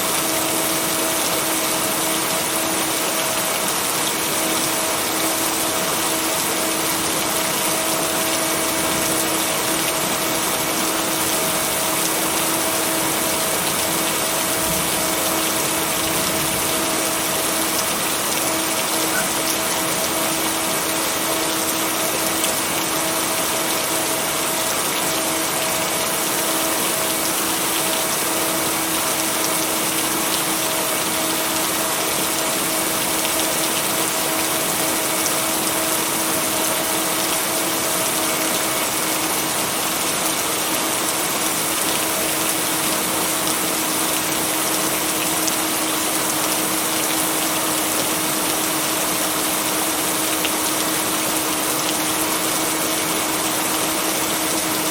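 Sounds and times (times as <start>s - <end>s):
heavy rain: 0.0s - 54.9s
faint higher tone: 19.1s - 19.6s.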